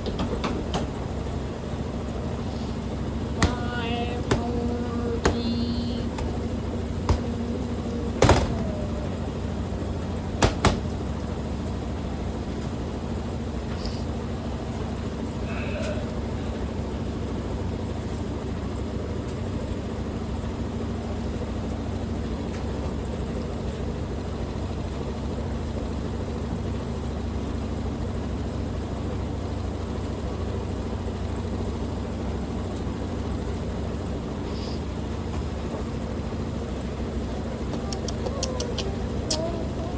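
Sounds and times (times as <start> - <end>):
washing machine drum spinning: 0.0 - 13.3
sharp knocks: 3.4 - 9.1, 10.4 - 11.0.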